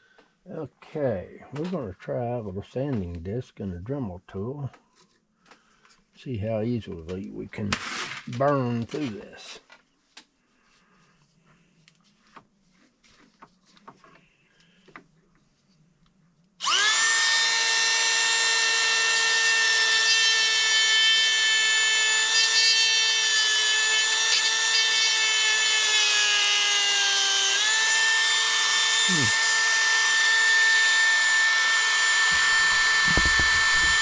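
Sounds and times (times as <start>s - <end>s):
rotary tool high whine: 16.6s - 34.0s.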